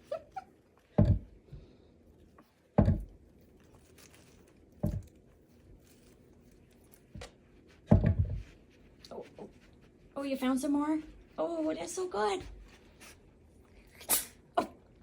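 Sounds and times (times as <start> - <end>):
cat crunching catnip: 2.1 - 7.6.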